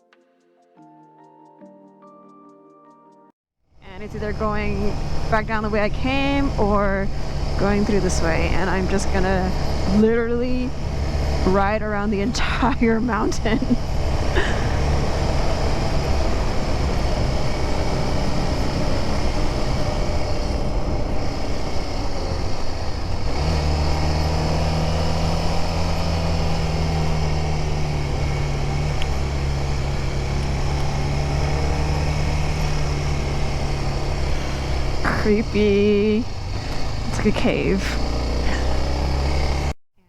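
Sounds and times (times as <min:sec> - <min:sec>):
motorcycle engine running: 0:03.8 - 0:39.8.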